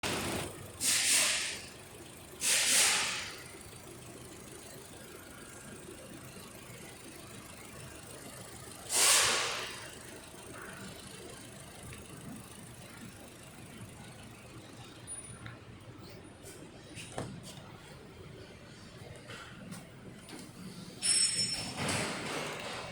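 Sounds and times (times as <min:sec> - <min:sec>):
loud hissing bursts: 0:00.8 - 0:01.6, 0:02.4 - 0:03.4, 0:08.9 - 0:09.8
car engine running: 0:01.7 - 0:15.4.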